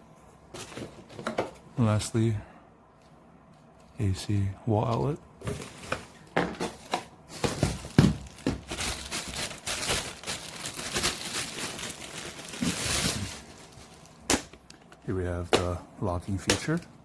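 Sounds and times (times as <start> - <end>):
plastic packaging crinkling: 5.4 - 15.2.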